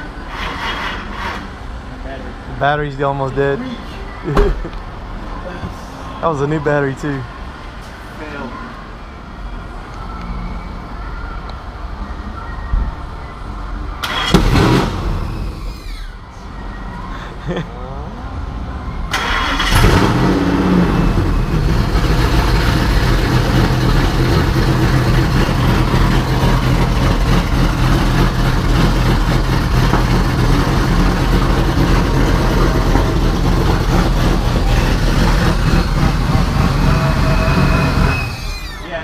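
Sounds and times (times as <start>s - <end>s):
car engine starting and running: 14.0s - 16.0s, 19.0s - 38.8s.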